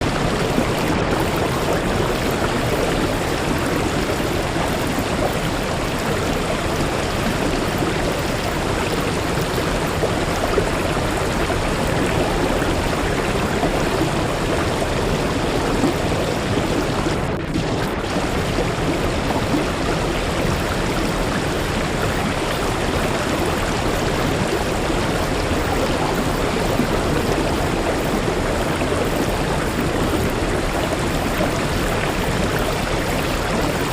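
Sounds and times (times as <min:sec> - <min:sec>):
waterfall rushing: 0:08.5 - 0:33.9.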